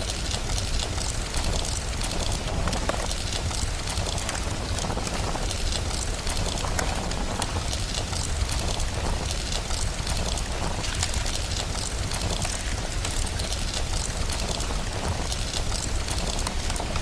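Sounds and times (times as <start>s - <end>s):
fire crackling and popping: 0.0s - 17.0s
steady rain: 0.0s - 17.0s.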